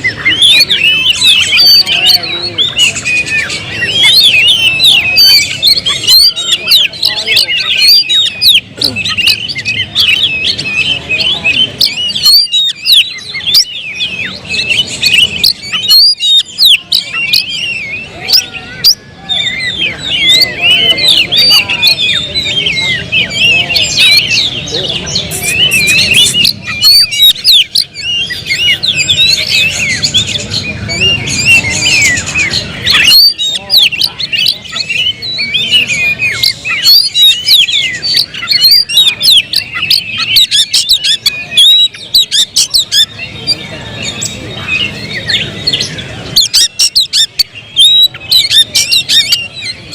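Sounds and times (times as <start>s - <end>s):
caged songbirds singing: 0.0s - 49.9s.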